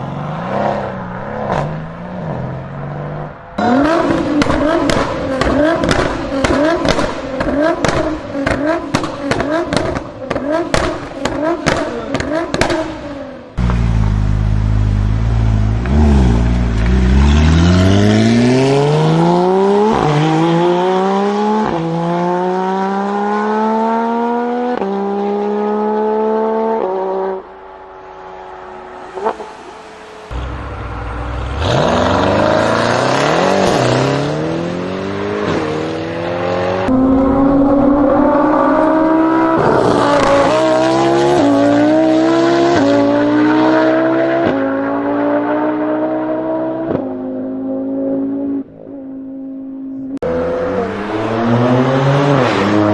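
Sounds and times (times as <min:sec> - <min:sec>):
car engine accelerating hard: 0:30.3 - 0:48.5.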